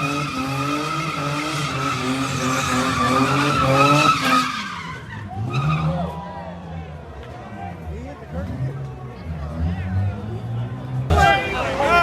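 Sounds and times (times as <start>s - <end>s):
tire squeal: 0.0s - 6.7s.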